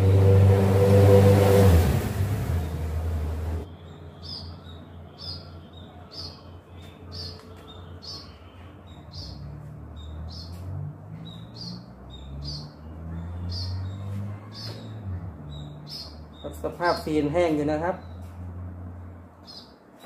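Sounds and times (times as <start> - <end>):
bird chirping: 3.6 - 18.5, 19.1 - 20.0.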